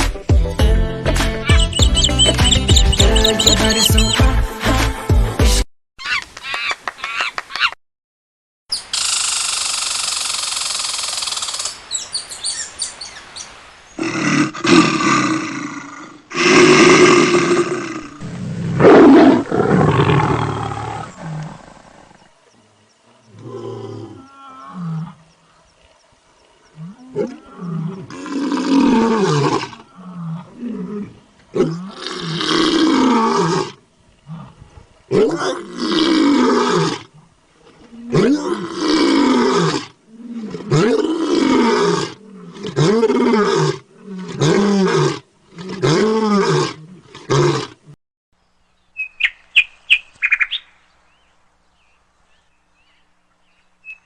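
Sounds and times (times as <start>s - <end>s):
animal roars and calls: 14.0s - 22.3s, 23.2s - 25.6s, 26.6s - 47.8s.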